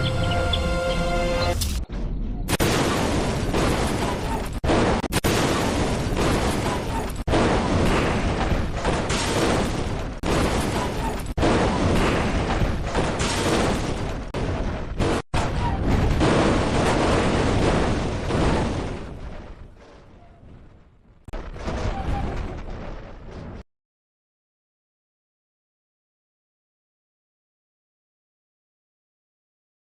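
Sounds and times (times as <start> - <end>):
explosion booms: 1.4 - 23.6.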